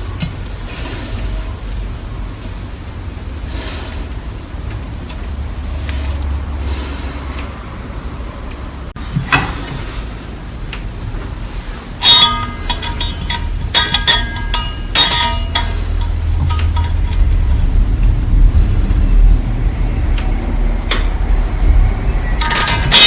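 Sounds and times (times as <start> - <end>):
steady low rumble: 0.0 - 9.0, 10.1 - 22.9
sharp metallic clinks: 12.0 - 17.8, 22.4 - 23.0.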